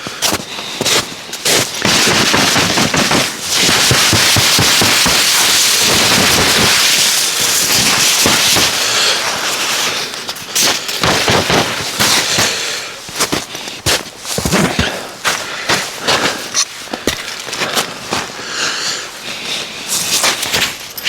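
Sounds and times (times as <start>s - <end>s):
campfire crackling and popping: 1.7s - 9.0s.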